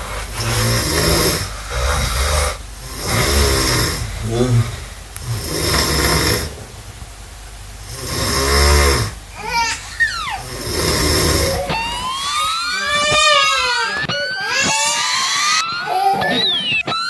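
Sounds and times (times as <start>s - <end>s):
person snoring: 0.0s - 7.0s, 7.9s - 9.7s, 10.3s - 13.8s.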